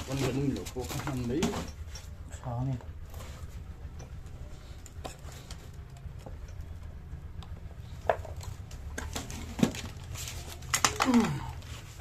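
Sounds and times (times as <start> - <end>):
steady low hum: 0.0 - 12.0
metal tools clicking and knocking: 0.1 - 2.3.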